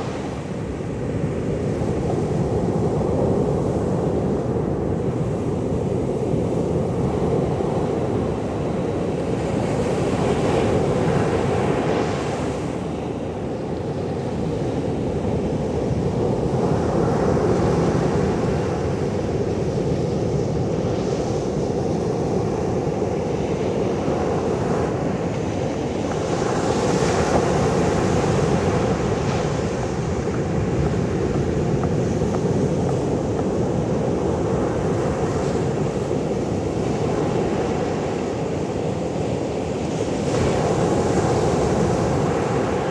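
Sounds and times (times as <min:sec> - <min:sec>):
sea surf washing: 0:22.5 - 0:38.6.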